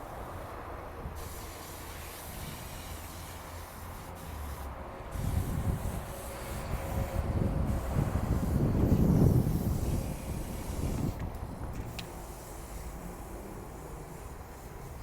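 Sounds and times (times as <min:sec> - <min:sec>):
steady hiss: 0:11.9 - 0:15.0.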